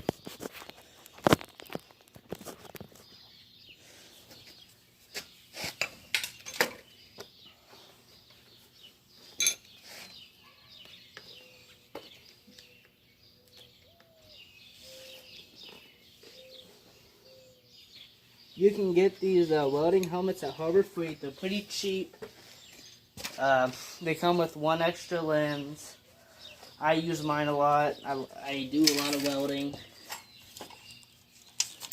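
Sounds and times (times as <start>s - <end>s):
birds chirping: 0.0s - 31.9s
ringing metallic clink: 9.4s - 9.7s.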